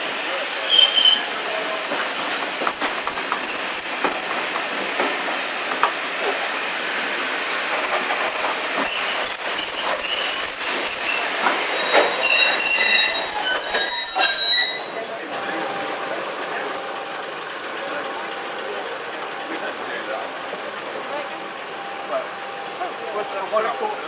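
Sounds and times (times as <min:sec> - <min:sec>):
train wheels squealing on rails: 0:00.6 - 0:15.2.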